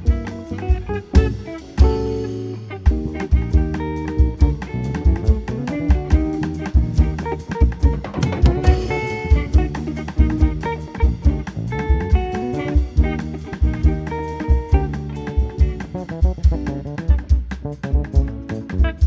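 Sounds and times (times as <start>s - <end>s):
bass: 0.0s - 19.0s
drum kit beat: 0.0s - 19.0s
guitar: 0.0s - 19.0s.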